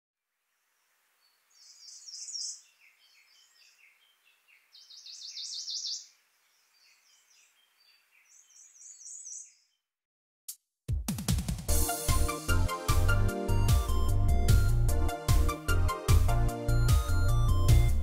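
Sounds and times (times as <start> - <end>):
faint background hiss: 0.2 - 9.1
songbird singing: 0.4 - 9.9.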